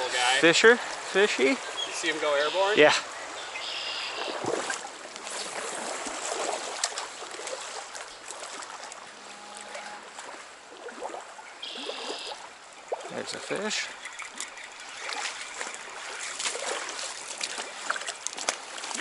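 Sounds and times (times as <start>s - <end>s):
stream water running: 0.0s - 19.0s
small splashes and clicks: 4.2s - 19.0s.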